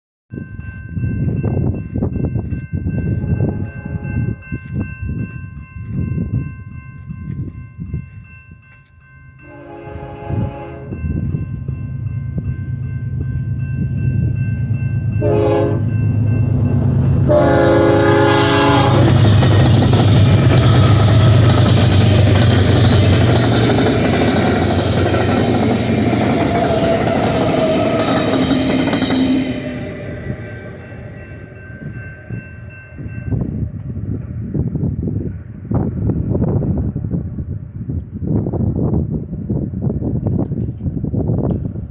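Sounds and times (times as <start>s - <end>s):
wind buffeting microphone: 0.3s - 8.8s, 9.8s - 41.9s
diesel locomotives rumbling: 0.4s - 8.3s, 9.4s - 41.9s
locomotive air horn blasts: 3.2s - 4.3s, 9.4s - 11.0s, 15.2s - 22.4s.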